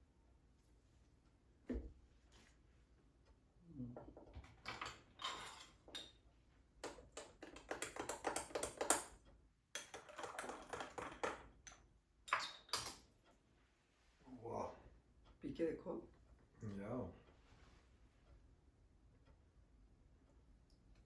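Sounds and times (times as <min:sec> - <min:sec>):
glass and ice clinking: 0:09.8 - 0:13.0.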